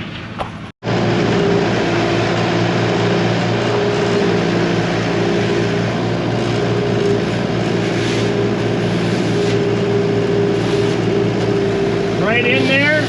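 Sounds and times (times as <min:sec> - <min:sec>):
vehicle engine running steadily: 0:00.0 - 0:13.0.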